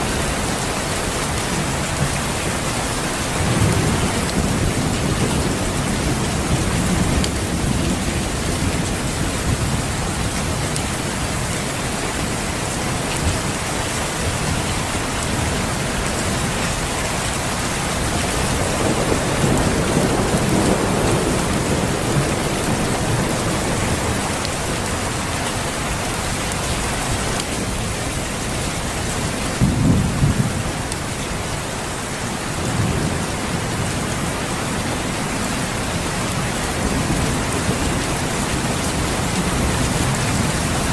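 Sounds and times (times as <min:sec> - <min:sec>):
steady rain: 0:00.0 - 0:40.9
thunder rumbling: 0:03.3 - 0:11.5, 0:14.4 - 0:31.0.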